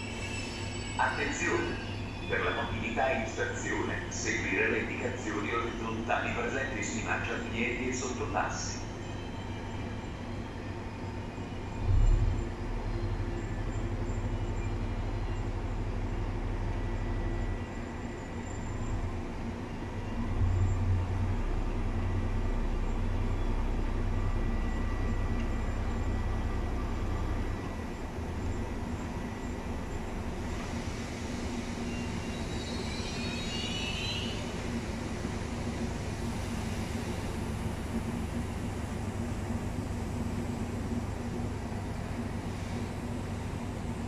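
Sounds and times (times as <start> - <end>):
train coaches rolling rumble: 0.0 - 44.0.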